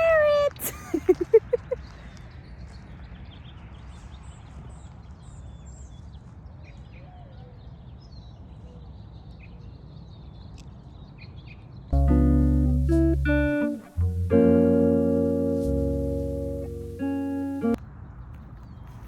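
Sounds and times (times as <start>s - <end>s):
low steady rumble: 12.0s - 17.8s.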